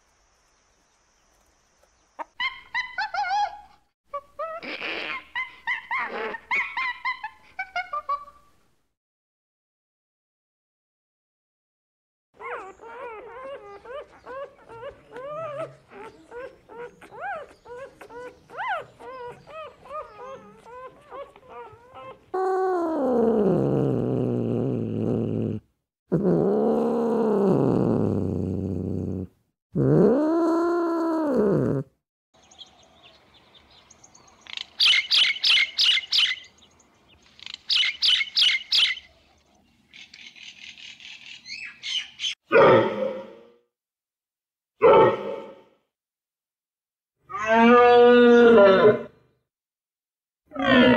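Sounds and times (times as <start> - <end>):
short chirping calls: 32.4 - 39.3, 39.9 - 42.4
leopard moaning calls: 50.5 - 50.9.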